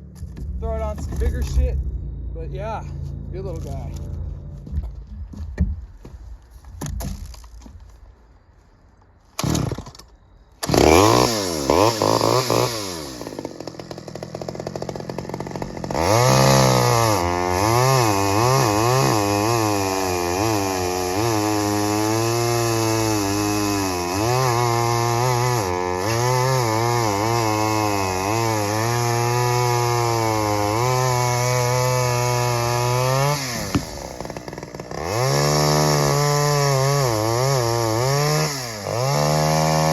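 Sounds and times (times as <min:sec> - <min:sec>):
chainsaw cutting wood: 0:09.4 - 0:39.9.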